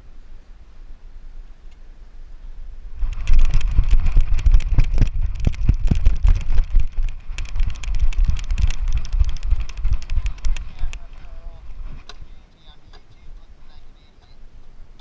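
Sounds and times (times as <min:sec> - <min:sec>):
microphone buffeting: 0:02.9 - 0:13.9
camera knocks and rattles: 0:03.0 - 0:11.0.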